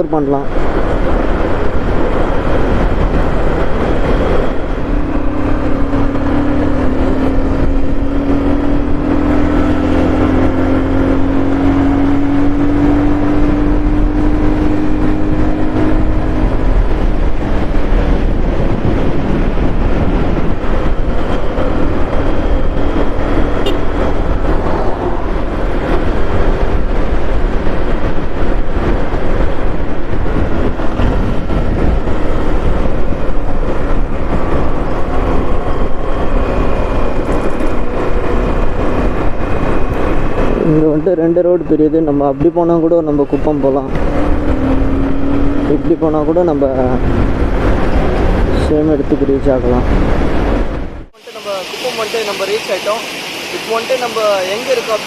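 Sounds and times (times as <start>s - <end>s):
road noise and rumble: 0.0s - 55.0s
engine note rising in pitch: 3.8s - 26.7s, 30.6s - 48.6s.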